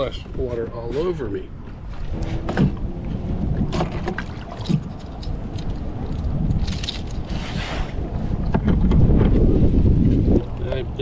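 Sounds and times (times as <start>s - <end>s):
wind buffeting microphone: 0.0s - 11.0s
fish splashing in water: 3.6s - 8.0s.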